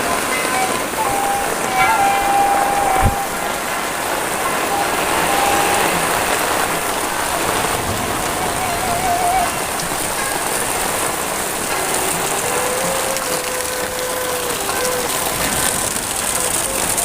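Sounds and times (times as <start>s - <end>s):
heavy rain: 0.0s - 17.0s
wavering tone: 0.0s - 17.0s
steady tone: 0.5s - 3.8s, 4.4s - 7.3s.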